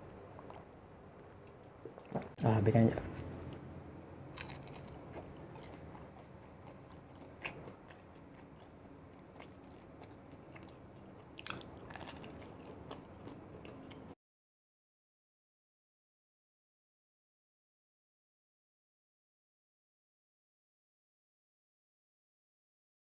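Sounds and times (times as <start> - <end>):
chewing fried food: 0.2 - 0.8, 3.1 - 14.2.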